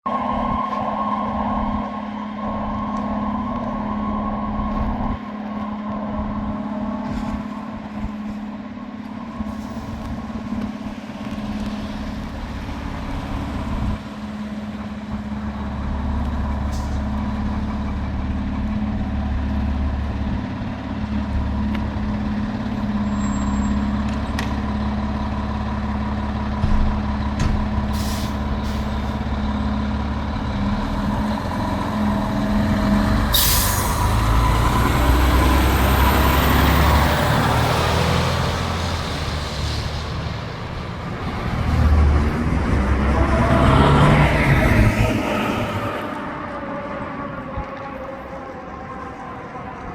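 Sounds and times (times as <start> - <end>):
fire engine droning: 0.0 - 49.9
air brake hiss: 16.7 - 17.1, 27.9 - 29.2, 33.3 - 34.4.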